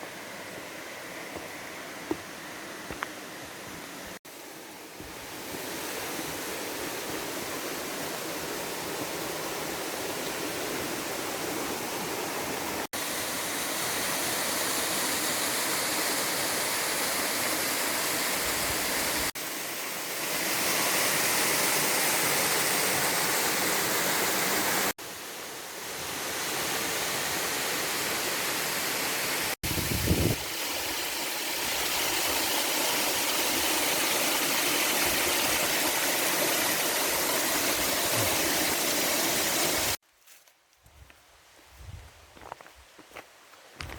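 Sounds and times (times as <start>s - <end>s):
waterfall rushing: 30.4s - 40.0s.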